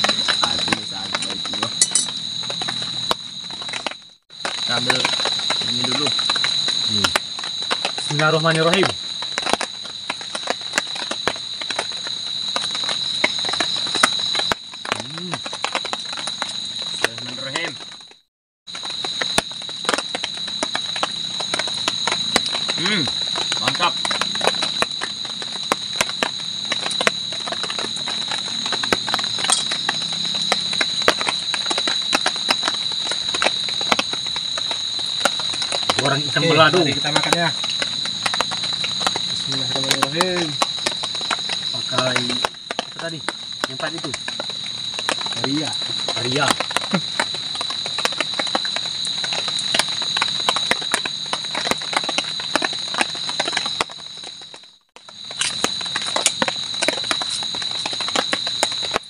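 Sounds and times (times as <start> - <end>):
night insects whining: 0.0 - 59.0
chewing food: 55.0 - 59.0.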